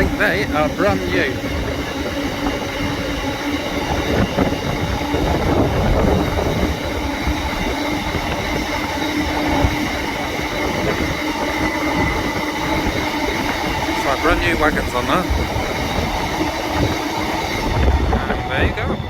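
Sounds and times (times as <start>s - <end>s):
wheels rumbling on rail: 0.0s - 19.0s
high steady tones: 4.8s - 18.9s.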